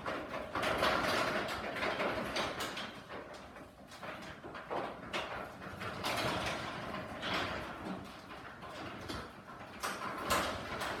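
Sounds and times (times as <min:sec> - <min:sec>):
garage door rollers rattling: 0:04.9 - 0:11.0.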